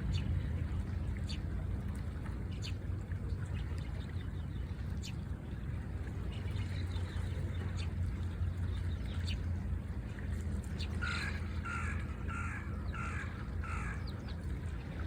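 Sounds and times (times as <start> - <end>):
low outdoor rumble: 0.0 - 15.0
crow cawing: 11.0 - 14.0.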